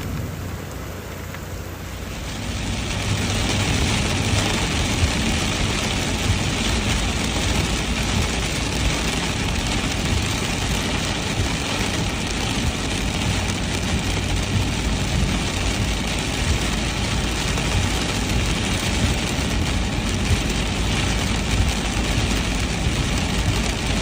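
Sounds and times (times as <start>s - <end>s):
constant low rumble: 0.0s - 24.0s
heavy rain falling: 0.0s - 24.0s.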